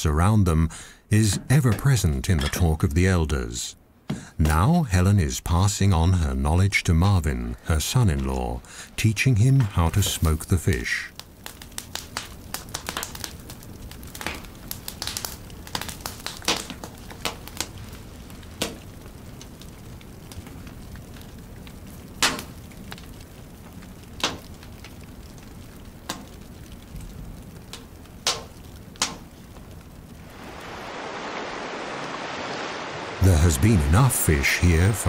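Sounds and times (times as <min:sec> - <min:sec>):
low steady hiss: 0:00.0 - 0:35.0
wood fire crackling and popping: 0:05.4 - 0:30.8, 0:33.2 - 0:35.0.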